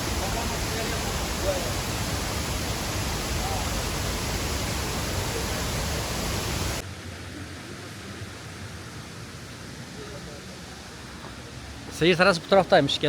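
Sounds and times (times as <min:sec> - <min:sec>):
waterfall rushing: 0:00.0 - 0:06.8.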